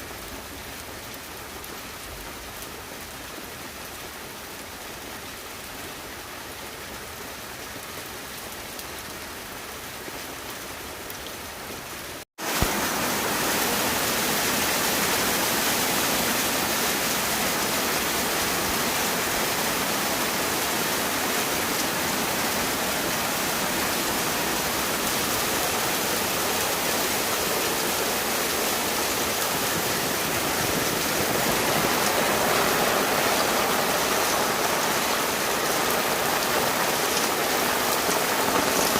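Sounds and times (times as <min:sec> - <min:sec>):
rain: 0:00.0 - 0:38.9
running water: 0:12.4 - 0:38.9.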